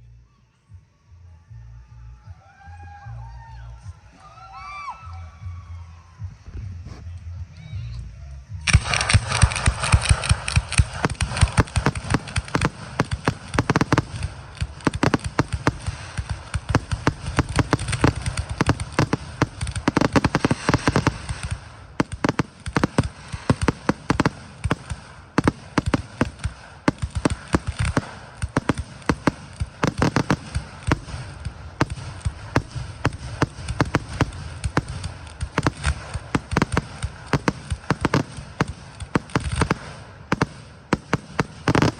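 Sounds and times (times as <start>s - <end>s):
fireworks bangs and crackles: 8.6s - 41.9s.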